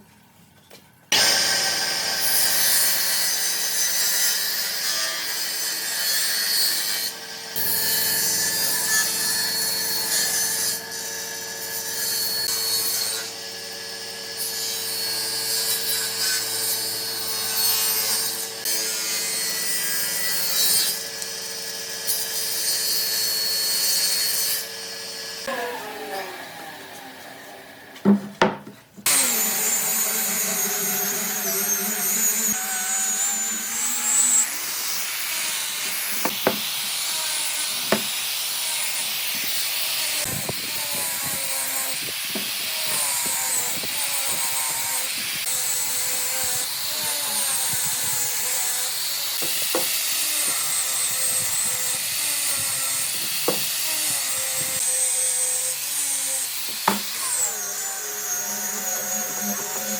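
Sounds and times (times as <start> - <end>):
electric power tool cutting wood: 1.1 - 28.0, 29.0 - 59.9
sharp knocks: 36.2 - 36.7, 37.9 - 38.1, 56.8 - 57.1.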